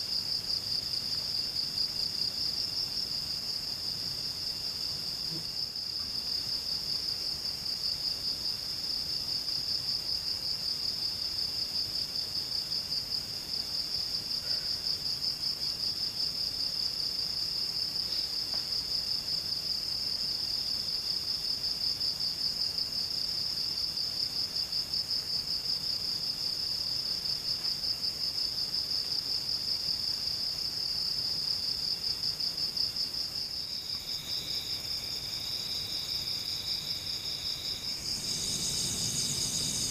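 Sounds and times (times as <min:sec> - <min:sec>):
lower insect trill: 0:00.0 - 0:39.9
loud high-pitched insect trill: 0:32.7 - 0:39.9.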